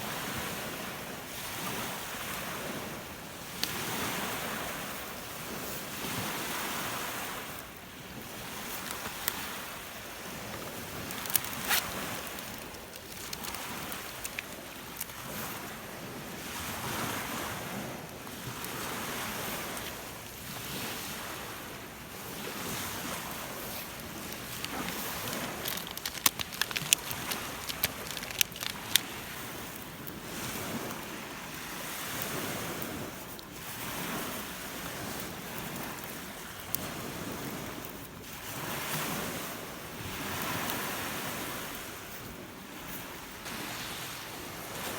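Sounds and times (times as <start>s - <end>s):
lake waves breaking on shore: 0.0s - 44.9s
sharp clicks: 23.8s - 29.1s.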